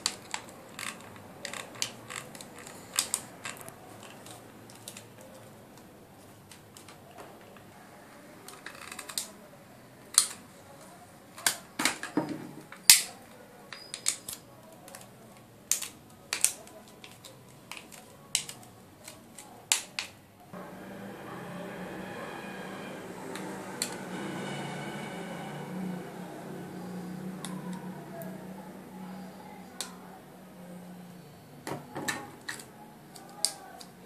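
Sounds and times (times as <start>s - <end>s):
low hum: 20.6s - 29.6s.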